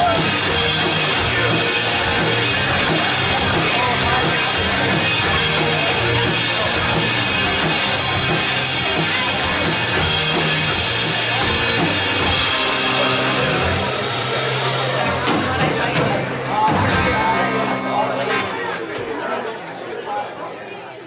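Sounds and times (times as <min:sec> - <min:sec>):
rock band music: 0:00.0 - 0:19.2.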